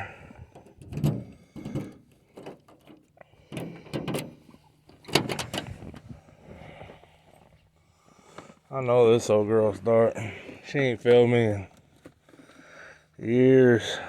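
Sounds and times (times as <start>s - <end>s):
truck door knocks and clunks: 0.6s - 2.0s.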